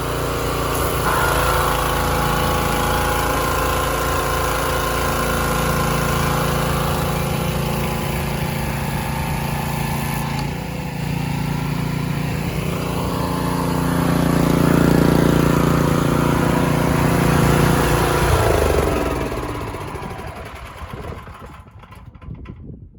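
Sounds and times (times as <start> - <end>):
pressure washer engine running: 0.0 - 22.3.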